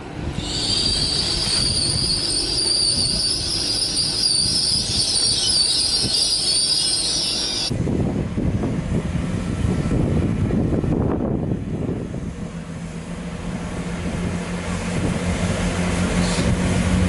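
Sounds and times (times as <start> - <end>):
low train rumble: 0.0 - 17.0
train wheels squealing: 0.3 - 7.7, 16.2 - 16.6.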